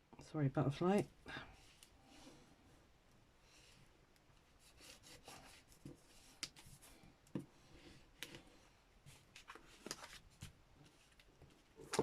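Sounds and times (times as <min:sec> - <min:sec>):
paper rustling: 0:09.1 - 0:12.0.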